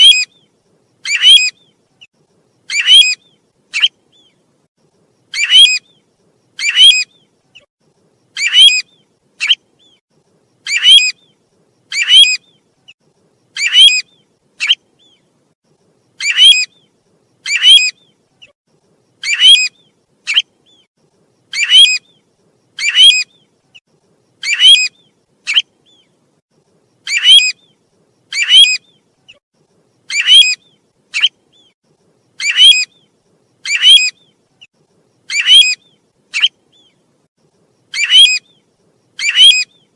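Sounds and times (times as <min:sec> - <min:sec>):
short high bird calls: 0:00.0 - 0:01.8, 0:02.6 - 0:04.4, 0:06.6 - 0:07.7, 0:08.3 - 0:10.0, 0:10.6 - 0:12.6, 0:21.5 - 0:22.2, 0:27.0 - 0:29.4, 0:35.3 - 0:37.0, 0:37.9 - 0:39.9.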